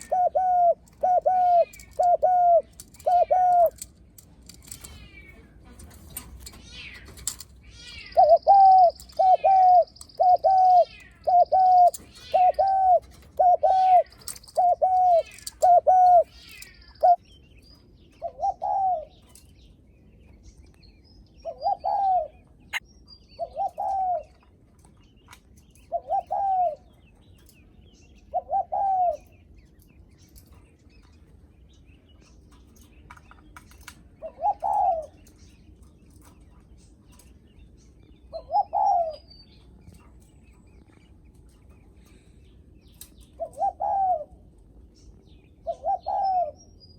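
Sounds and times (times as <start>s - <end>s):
dove cooing: 0.0s - 17.2s, 18.1s - 19.4s, 21.4s - 22.8s, 23.4s - 24.4s, 25.8s - 27.0s, 28.3s - 29.4s, 34.1s - 35.3s, 38.3s - 39.3s, 43.2s - 44.5s, 45.6s - 46.6s
small birds chirping faintly: 0.0s - 46.9s.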